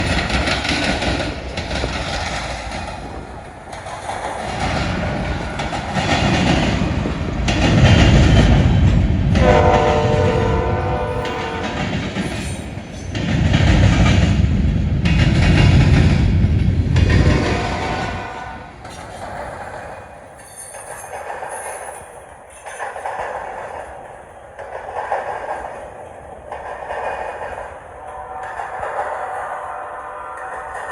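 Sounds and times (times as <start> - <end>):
diesel locomotives rumbling: 0.0 - 30.9
locomotive air horn: 9.4 - 11.9, 17.3 - 18.7, 28.1 - 30.9.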